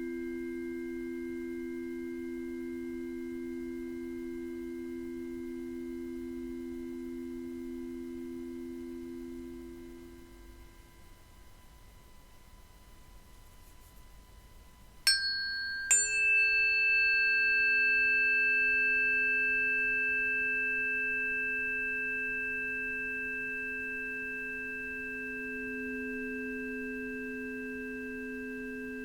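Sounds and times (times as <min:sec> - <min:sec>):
metal bells ringing: 0:15.1 - 0:22.0.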